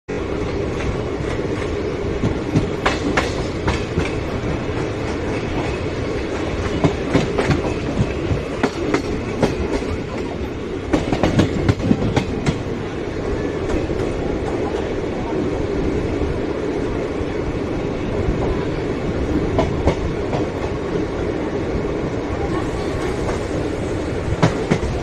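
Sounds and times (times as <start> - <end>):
train wheels rumbling: 0.1 - 25.0
wheels clacking over rail joints: 0.7 - 12.8.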